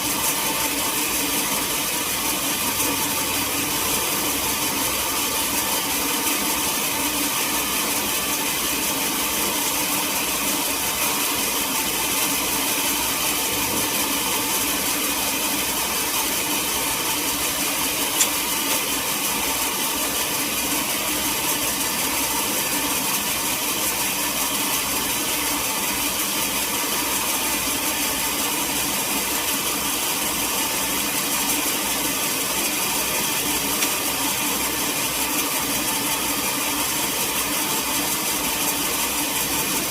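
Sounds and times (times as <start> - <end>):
sawmill machinery running: 0.0 - 39.9
sharp click: 18.2 - 18.4.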